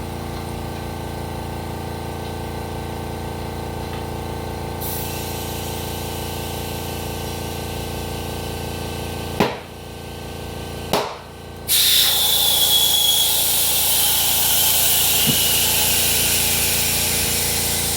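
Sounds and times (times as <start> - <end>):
steady mechanical hum: 0.0 - 17.9
faint high whistle: 11.7 - 16.6
loud steady hiss: 11.7 - 17.9.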